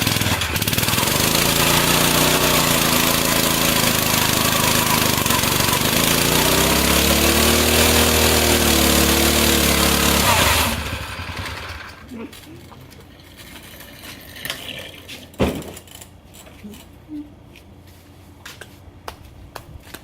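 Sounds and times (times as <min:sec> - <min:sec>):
small engine at high revs: 0:00.0 - 0:12.1.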